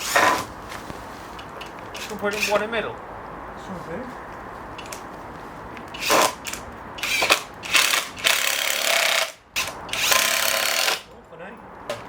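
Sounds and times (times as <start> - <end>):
power drill driving a screw: 0.0 - 0.5, 5.9 - 11.0.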